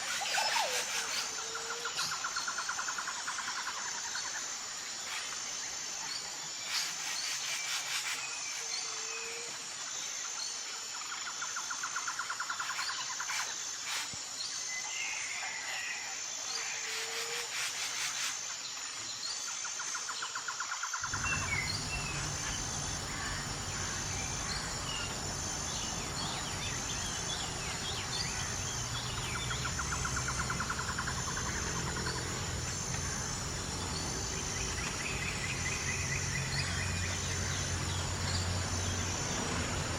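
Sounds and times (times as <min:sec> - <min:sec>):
small birds chirping: 0:21.0 - 0:39.1
high-pitched insect drone: 0:21.0 - 0:39.9
steady low hum: 0:21.0 - 0:39.9.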